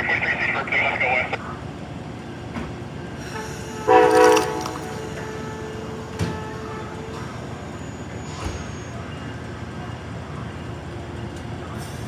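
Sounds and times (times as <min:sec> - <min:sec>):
train rumble: 0:00.0 - 0:12.0
locomotive horn blast: 0:03.3 - 0:09.0.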